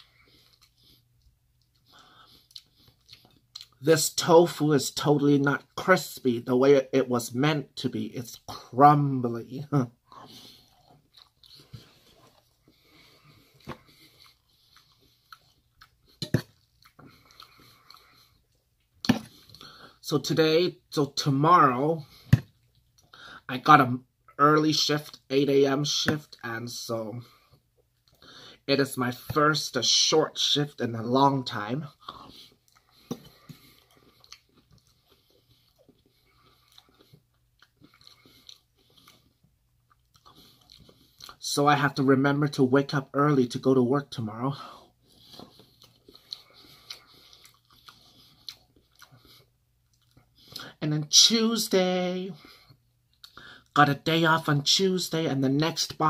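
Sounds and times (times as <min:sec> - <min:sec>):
man chewing food: 0:00.0 - 0:03.8, 0:10.0 - 0:20.1, 0:21.7 - 0:23.4, 0:27.2 - 0:28.6, 0:31.1 - 0:41.4, 0:44.6 - 0:50.8, 0:52.4 - 0:53.8.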